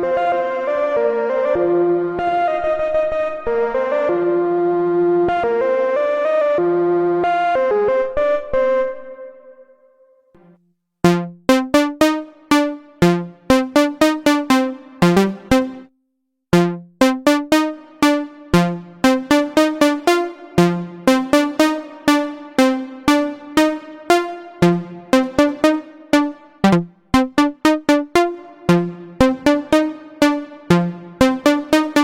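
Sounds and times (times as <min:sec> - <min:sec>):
plucky synthesizer pattern: 0:11.0 - 0:15.9, 0:16.5 - 0:32.0.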